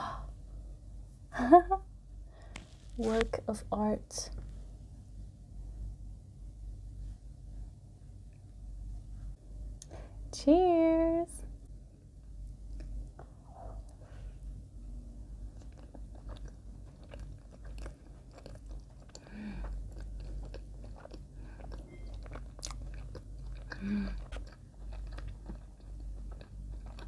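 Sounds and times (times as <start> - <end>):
chewing bread: 12.4 - 14.6, 15.2 - 27.0.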